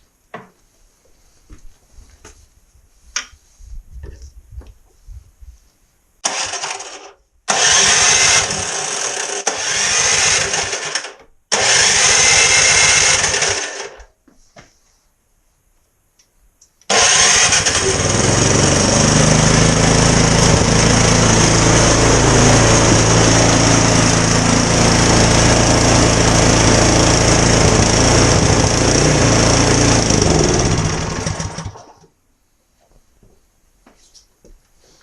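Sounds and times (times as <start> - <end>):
snowblower engine running: 6.3 - 14.0, 16.9 - 32.1.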